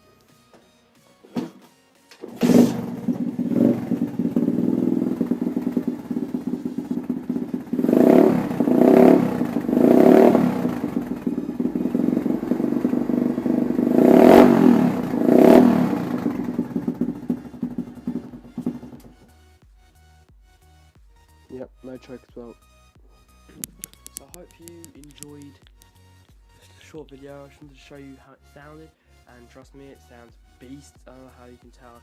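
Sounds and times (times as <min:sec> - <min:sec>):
motorbike engine idling: 0:02.3 - 0:19.1
motorbike engine revving: 0:02.3 - 0:19.1.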